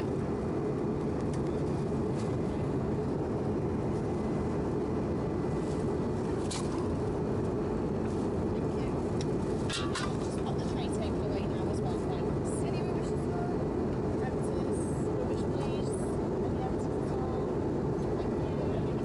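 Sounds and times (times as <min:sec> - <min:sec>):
airplane cabin roar: 0:00.0 - 0:19.0.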